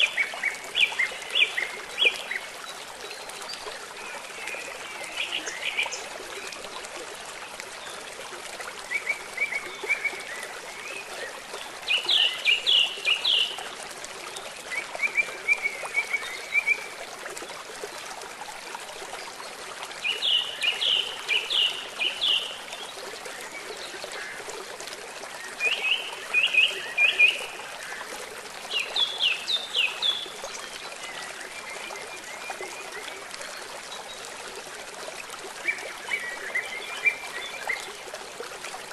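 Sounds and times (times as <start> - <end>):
rain: 0.0 - 38.9
running water: 0.0 - 38.9.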